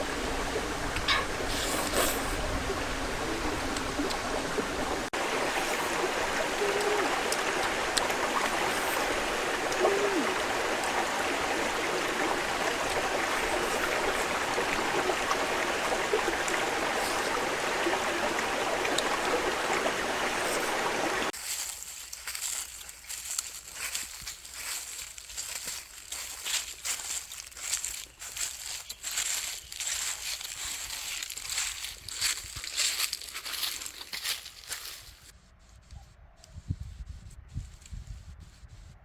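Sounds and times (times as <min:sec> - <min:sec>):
flowing water rushing: 0:00.0 - 0:21.4.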